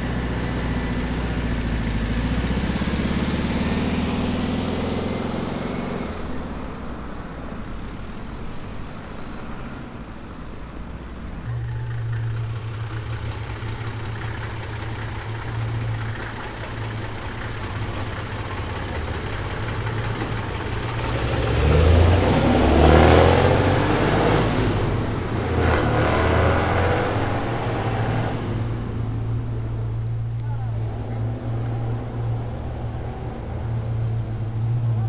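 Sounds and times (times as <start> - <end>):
car engine idling: 0.0 - 23.8, 28.4 - 35.0
car accelerating: 0.0 - 35.0.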